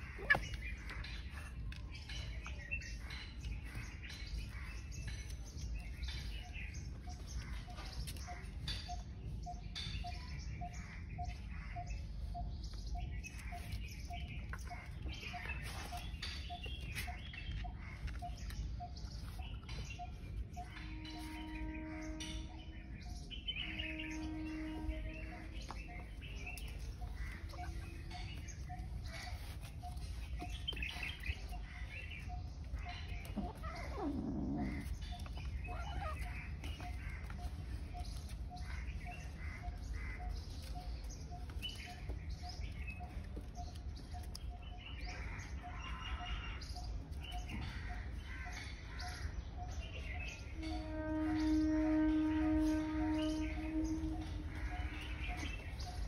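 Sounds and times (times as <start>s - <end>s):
birds chirping: 0.0s - 56.0s
low repeated note: 20.1s - 29.2s, 50.0s - 56.0s.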